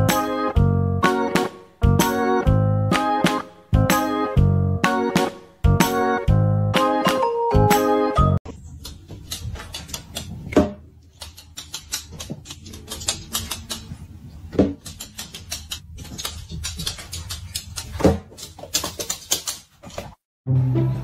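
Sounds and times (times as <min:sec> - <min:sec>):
dog pawing clicking and tapping: 0:14.8 - 0:20.2.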